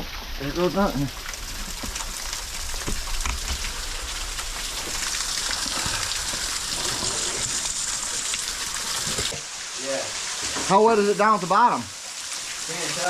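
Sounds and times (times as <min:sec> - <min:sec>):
heavy rain hissing: 0:00.0 - 0:13.0
drips and taps: 0:01.0 - 0:03.8.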